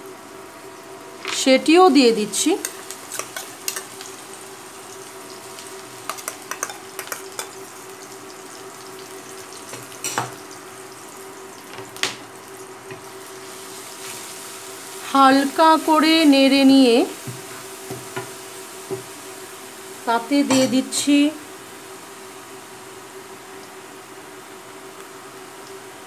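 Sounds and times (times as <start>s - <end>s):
paste sizzling in hot oil: 2.1s - 20.9s.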